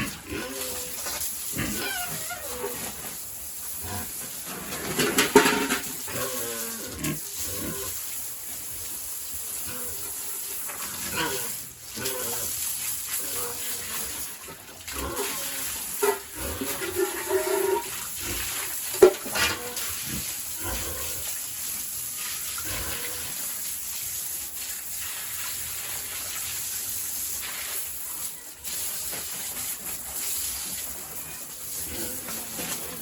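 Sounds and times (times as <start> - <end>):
hose spraying water on floor: 0.0 - 33.0
pig squeals: 0.3 - 3.0.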